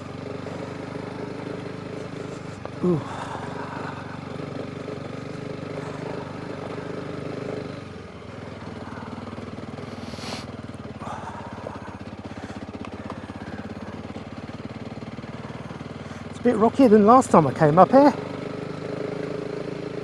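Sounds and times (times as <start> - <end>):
motorcycle engine: 0.0 - 20.0.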